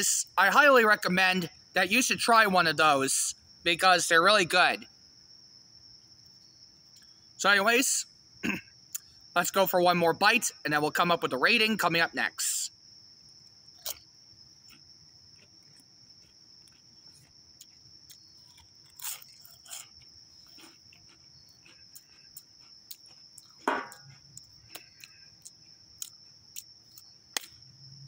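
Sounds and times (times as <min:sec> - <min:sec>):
crickets chirring: 0:00.0 - 0:28.0
chewing crisps crunching: 0:13.8 - 0:27.1.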